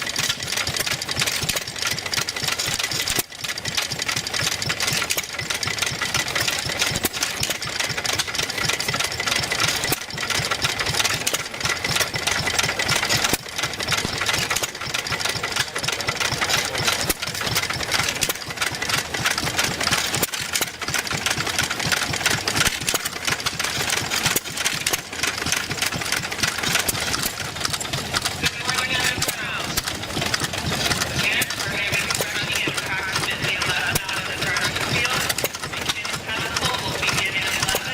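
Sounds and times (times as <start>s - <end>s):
engines popping on firing strokes: 0.0s - 37.9s.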